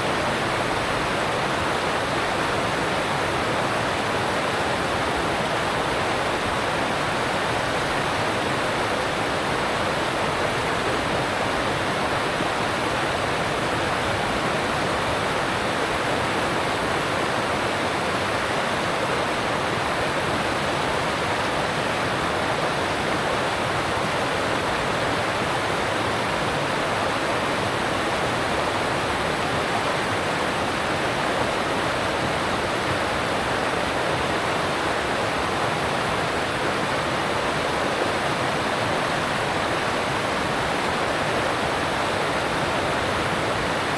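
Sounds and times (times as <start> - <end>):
stream rushing over rocks: 0.0 - 43.9.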